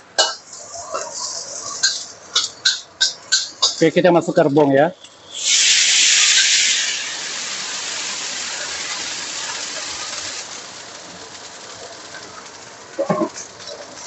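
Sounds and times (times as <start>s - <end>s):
bamboo shoots sizzling in oil: 0.2s - 4.0s, 4.9s - 14.0s.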